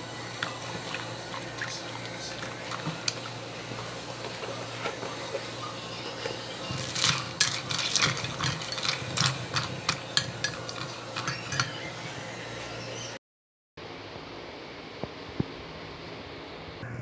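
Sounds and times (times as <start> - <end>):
spoon clinking against a cup: 6.1 - 11.9.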